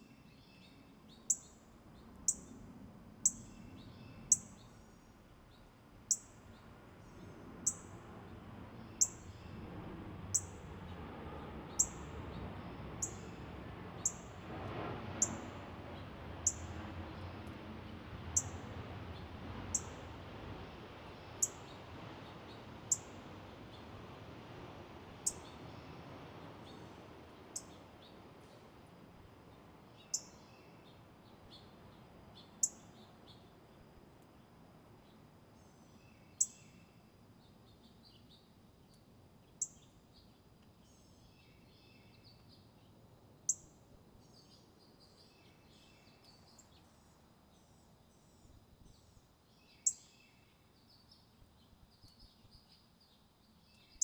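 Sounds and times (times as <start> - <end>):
small birds chirping: 8.8 - 9.6, 12.6 - 13.4, 29.9 - 33.5, 47.6 - 54.0.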